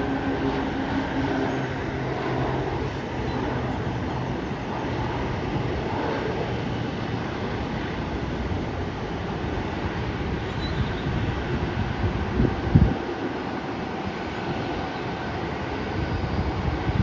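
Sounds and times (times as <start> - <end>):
turboprop engines roaring: 0.0 - 17.0.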